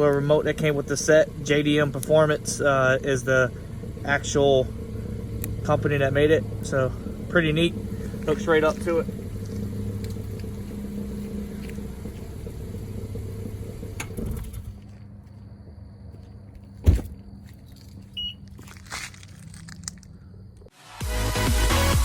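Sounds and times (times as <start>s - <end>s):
car engine idling: 0.0s - 20.7s
heavy thump: 16.8s - 17.2s.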